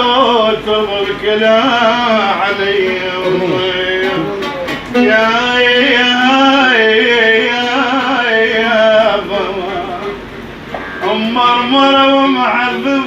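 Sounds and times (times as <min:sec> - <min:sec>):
man singing long notes: 0:00.0 - 0:10.3.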